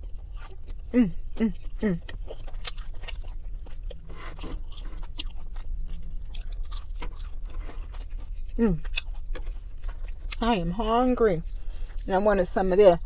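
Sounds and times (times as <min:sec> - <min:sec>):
person chewing with wet clicks: 0:00.0 - 0:10.6
steady low hum: 0:00.0 - 0:13.0.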